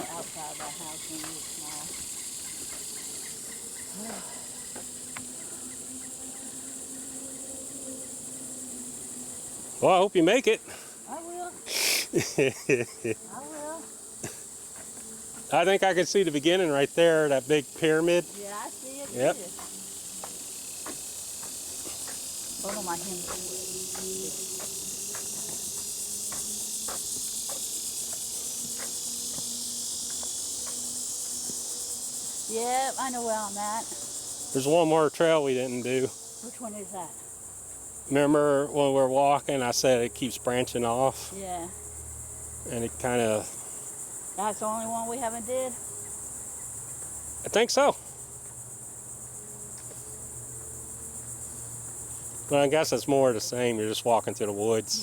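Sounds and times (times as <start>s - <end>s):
soft footsteps on trail: 0.0s - 5.3s, 14.6s - 15.6s, 18.2s - 31.7s
insect chorus drone: 0.0s - 55.0s.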